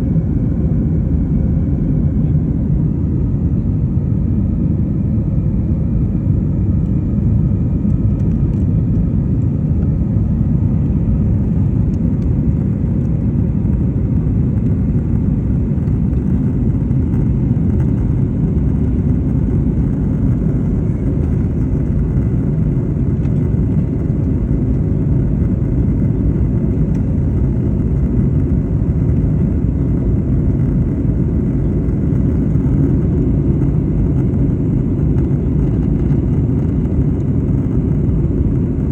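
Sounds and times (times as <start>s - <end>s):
airliner cabin engine rumble: 0.0s - 38.9s
faint engine whine: 0.0s - 38.9s.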